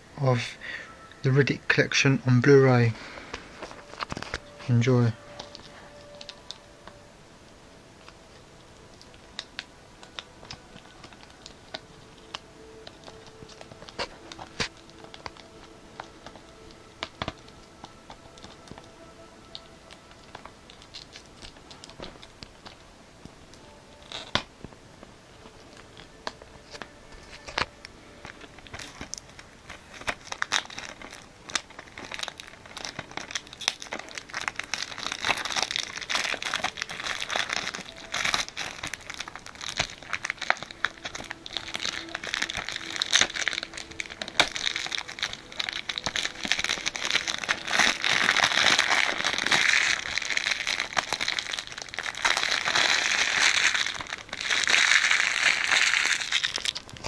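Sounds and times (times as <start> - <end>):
plastic wrapping crinkling: 0.0 - 57.0
small clicks and crackles: 3.1 - 7.0, 8.0 - 57.0.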